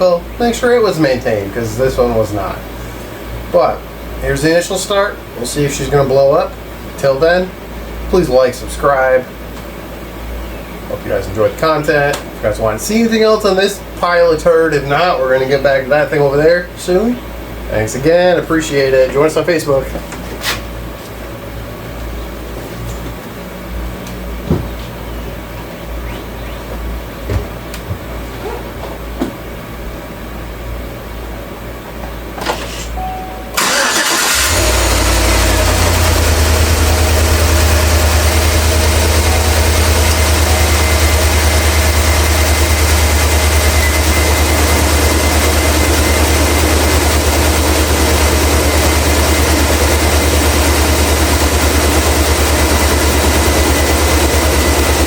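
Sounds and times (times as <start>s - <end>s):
low hum: 33.0s - 55.0s
engine cranking and idling: 33.5s - 55.0s
thin high whine: 38.9s - 42.2s.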